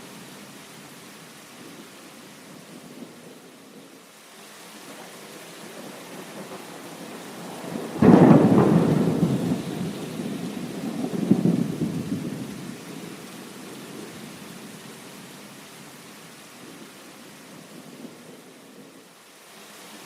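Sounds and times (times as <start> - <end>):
heavy rain: 0.0 - 20.0
thunderclap and rumble: 6.1 - 13.2.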